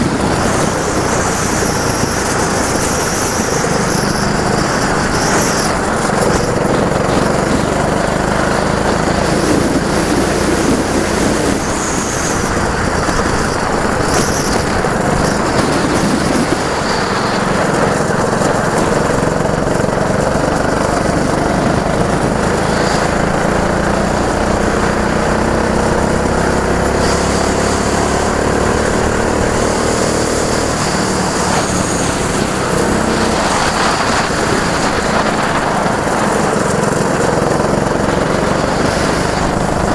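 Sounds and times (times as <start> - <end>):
go-kart engines running: 0.0 - 39.9.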